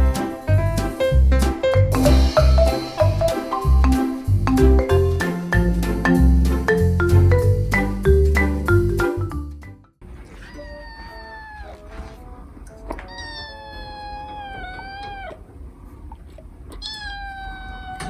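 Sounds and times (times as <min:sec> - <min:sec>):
kitten meowing: 0:10.5 - 0:11.9, 0:13.0 - 0:15.4, 0:16.8 - 0:18.0.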